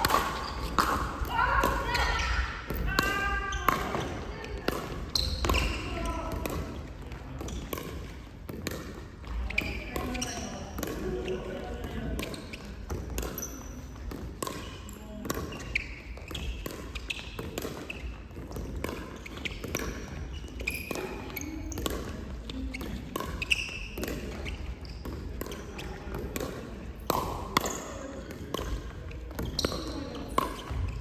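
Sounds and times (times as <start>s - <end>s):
shoe squeaks on court: 0.0s - 1.2s, 3.2s - 6.4s, 9.3s - 26.0s, 27.6s - 31.0s
ball hits and bounces: 0.0s - 31.0s.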